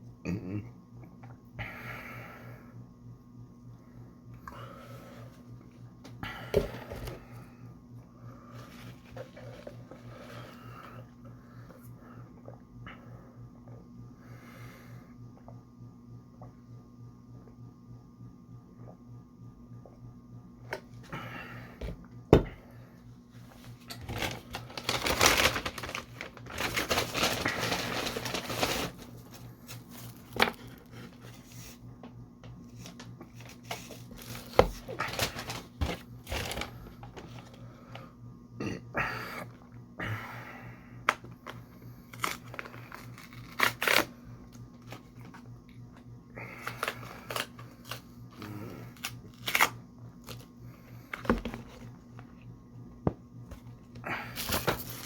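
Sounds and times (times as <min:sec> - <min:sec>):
faint steady hum: 0:00.0 - 0:55.0
crinkling and crunching: 0:23.4 - 0:31.7, 0:32.5 - 0:37.6, 0:41.2 - 0:45.4, 0:53.5 - 0:55.0.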